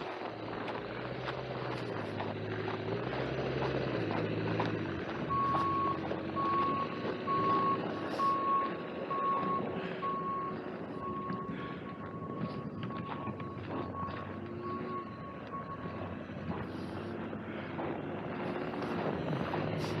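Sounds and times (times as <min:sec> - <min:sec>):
engine running: 0:00.0 - 0:20.0
reversing alarm beeping: 0:05.2 - 0:16.8.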